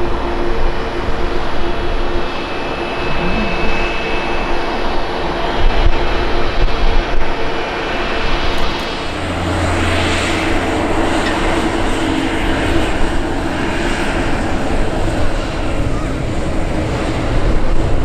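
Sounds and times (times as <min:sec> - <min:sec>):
airplane engines passing: 0:00.0 - 0:18.0.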